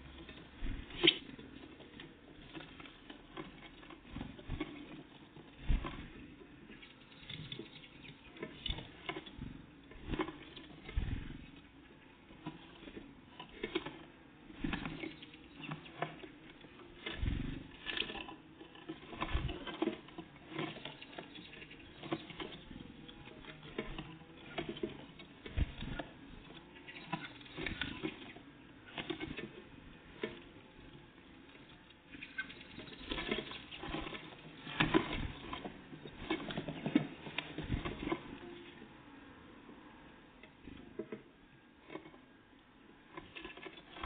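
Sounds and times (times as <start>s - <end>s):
birds pecking at food: 0.0s - 38.8s.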